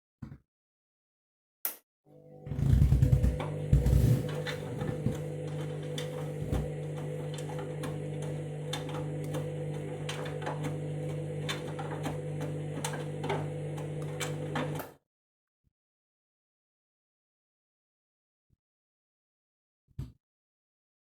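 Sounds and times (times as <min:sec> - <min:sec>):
washing machine motor hum: 0:02.1 - 0:14.9.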